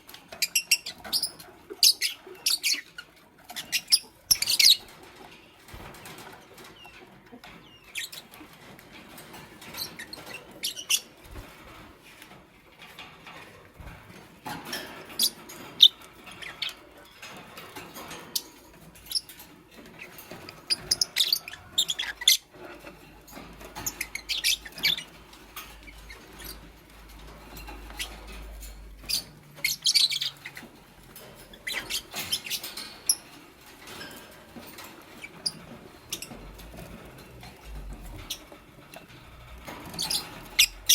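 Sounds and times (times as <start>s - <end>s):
small clicks and rustles: 0.0s - 40.9s
lovebirds chirping: 0.4s - 8.3s, 23.7s - 25.2s, 27.4s - 33.3s, 35.0s - 38.6s, 39.8s - 40.9s.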